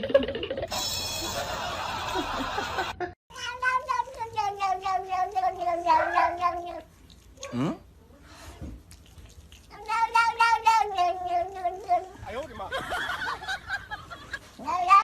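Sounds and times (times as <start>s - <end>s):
cat caterwauling: 3.3s - 7.7s.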